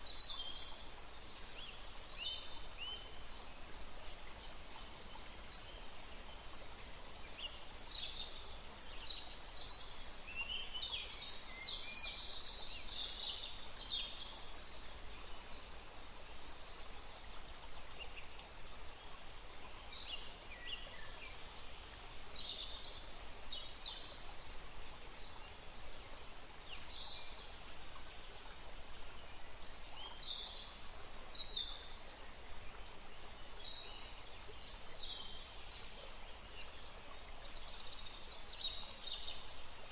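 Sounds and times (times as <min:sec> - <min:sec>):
soft outdoor background rush: 0:00.0 - 0:39.9.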